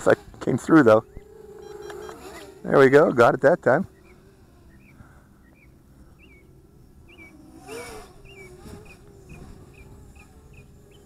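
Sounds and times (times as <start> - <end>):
small bird chirping: 1.0 - 2.4, 3.8 - 11.0.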